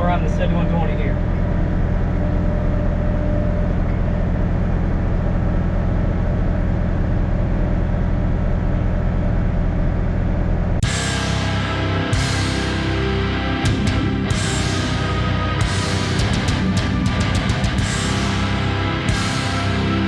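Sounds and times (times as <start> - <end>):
tractor diesel engine droning: 0.0 - 20.0
heavy rock music: 10.8 - 20.0.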